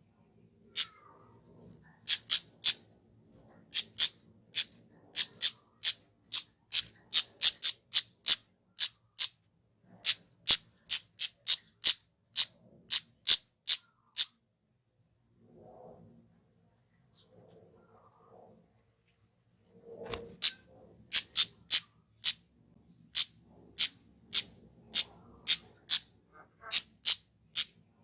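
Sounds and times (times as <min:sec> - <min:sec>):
bird high tsit calls: 0:00.7 - 0:01.0, 0:02.1 - 0:02.8, 0:03.7 - 0:09.4, 0:10.0 - 0:14.3, 0:20.1 - 0:22.4, 0:23.1 - 0:27.8.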